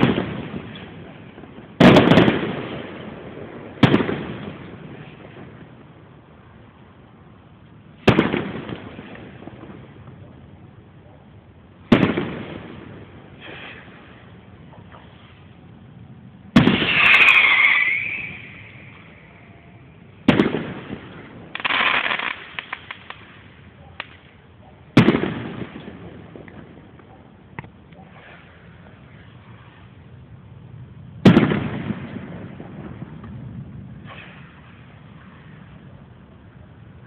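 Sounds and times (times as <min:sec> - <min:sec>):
firework crackling pops: 0:00.0 - 0:06.0, 0:07.6 - 0:10.3, 0:11.8 - 0:15.6, 0:16.5 - 0:19.3, 0:20.1 - 0:30.0, 0:31.2 - 0:35.9
firework hissing rush: 0:13.3 - 0:15.6, 0:16.6 - 0:19.2, 0:34.0 - 0:35.7
firework shell bursts: 0:16.6 - 0:19.2, 0:34.0 - 0:35.4.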